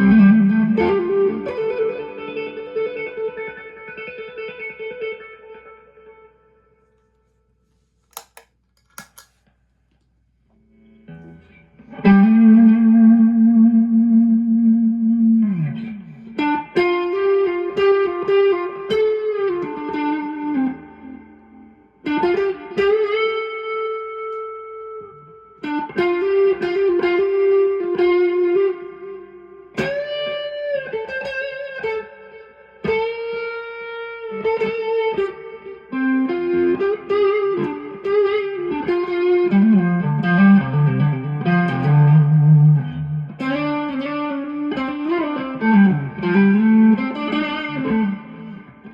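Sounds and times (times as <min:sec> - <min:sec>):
electric guitar bluesy lead: 0:00.0 - 0:06.4, 0:10.8 - 0:48.9.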